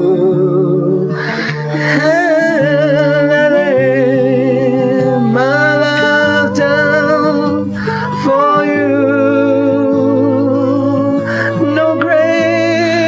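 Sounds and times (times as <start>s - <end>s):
wordless singing with vibrato: 0.0s - 13.0s
breath intake: 1.1s - 2.0s.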